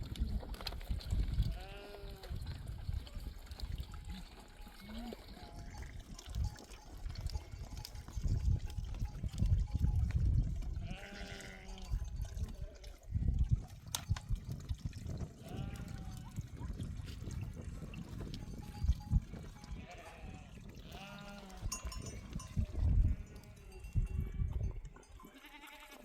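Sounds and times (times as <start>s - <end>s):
wind on microphone: 0.0s - 25.2s
sheep bleating: 1.5s - 2.3s, 10.8s - 11.8s, 15.4s - 16.2s, 19.8s - 21.8s, 25.2s - 26.0s.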